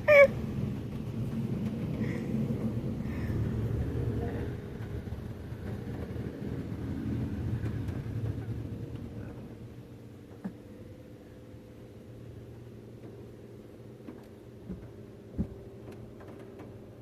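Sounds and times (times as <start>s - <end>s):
car wash machinery rumbling: 0.0s - 17.0s.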